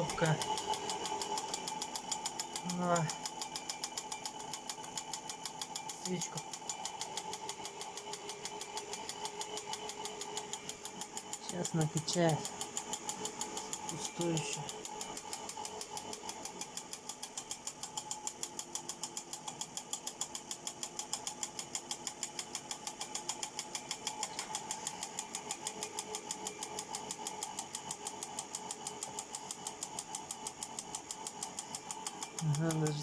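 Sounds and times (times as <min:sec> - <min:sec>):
fuel pump ticking: 0:00.0 - 0:18.1
blower motor whirring: 0:00.0 - 0:18.4, 0:23.4 - 0:33.0.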